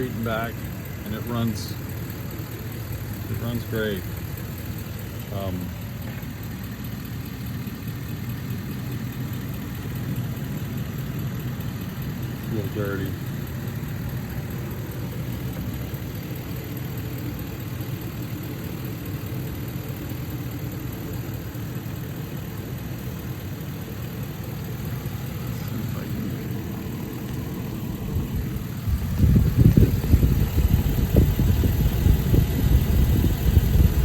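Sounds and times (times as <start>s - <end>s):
bus engine idling: 0.0s - 34.0s
low rough bumps: 25.5s - 34.0s.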